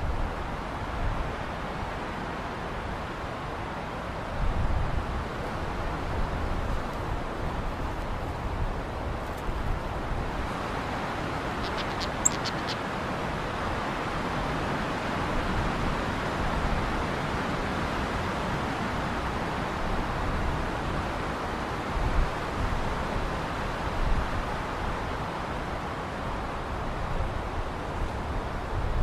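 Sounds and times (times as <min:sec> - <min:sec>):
steady rushing noise: 0:04.4 - 0:12.8.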